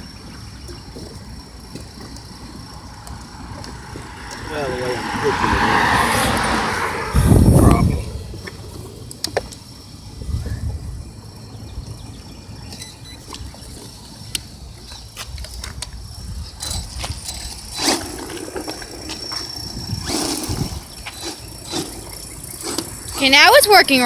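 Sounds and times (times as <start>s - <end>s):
wind rumble on microphone: 0.0s - 13.9s, 14.6s - 24.0s
high motor whine: 0.0s - 24.0s
tyres clicking and scrabbling: 12.8s - 24.0s.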